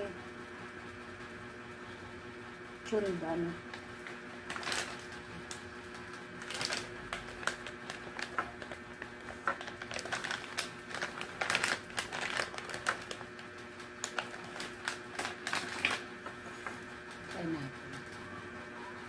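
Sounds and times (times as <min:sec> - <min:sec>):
plastic wrapper crinkling: 0:03.7 - 0:16.1.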